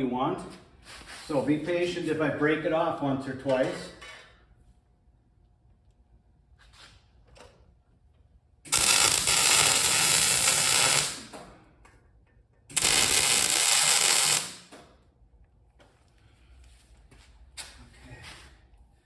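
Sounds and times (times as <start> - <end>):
welding arc crackle: 8.7 - 11.4, 12.7 - 14.8.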